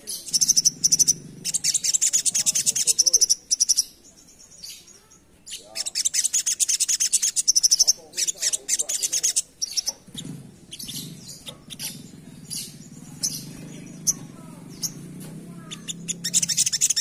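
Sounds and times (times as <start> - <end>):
bird chattering song: 0.0 - 17.0.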